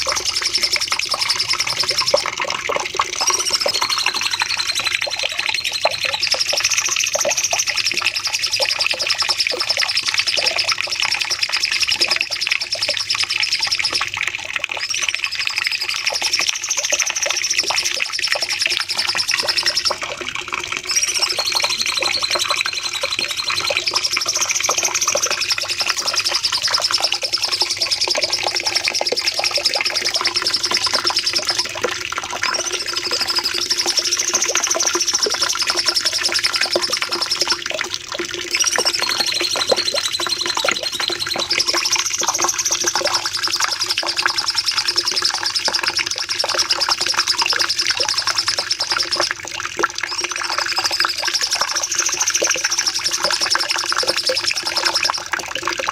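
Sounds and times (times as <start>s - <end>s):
songbird high trill: 3.2s - 6.8s, 20.9s - 29.3s.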